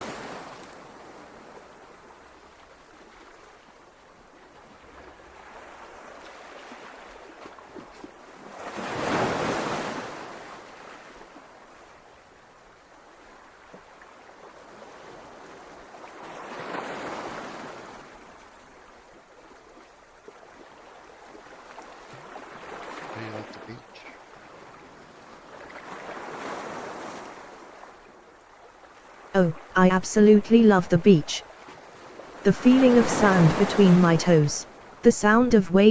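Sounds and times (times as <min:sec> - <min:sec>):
ocean surf washing: 0:00.0 - 0:02.1, 0:08.5 - 0:11.1, 0:22.2 - 0:28.0, 0:29.1 - 0:35.9
waves breaking: 0:00.0 - 0:12.4, 0:13.1 - 0:35.9.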